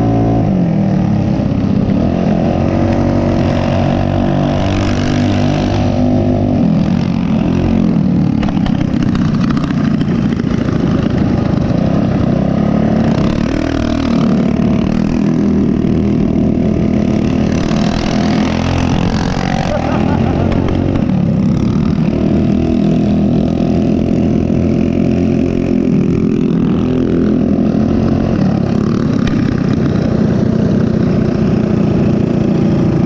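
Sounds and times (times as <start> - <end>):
mini bike engine revving: 0.0 - 33.0.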